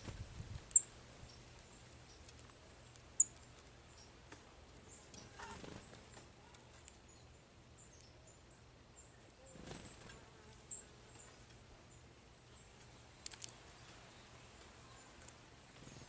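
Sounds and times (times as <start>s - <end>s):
soft clicks: 12.8s - 14.0s.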